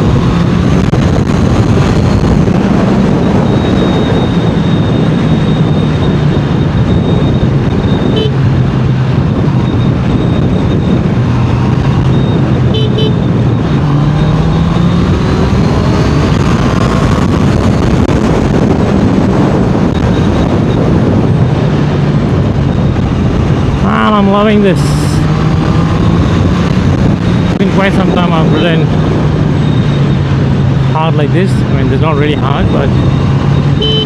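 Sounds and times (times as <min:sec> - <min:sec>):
motorcycle engine accelerating: 0:00.0 - 0:34.0
wind rushing over microphone: 0:00.0 - 0:34.0
horn toots: 0:08.0 - 0:08.4, 0:12.7 - 0:13.2, 0:33.8 - 0:34.0.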